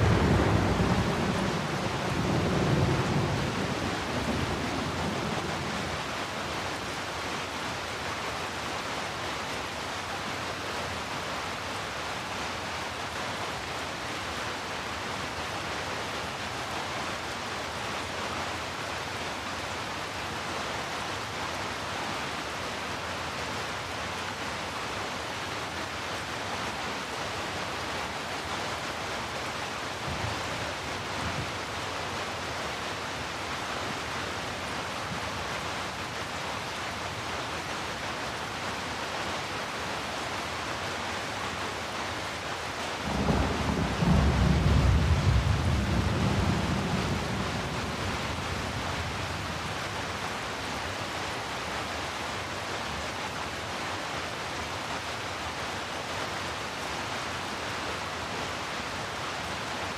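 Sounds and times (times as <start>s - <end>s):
low rumble of thunder: 0.0s - 6.1s, 43.1s - 49.9s
steady rain falling: 0.0s - 59.9s.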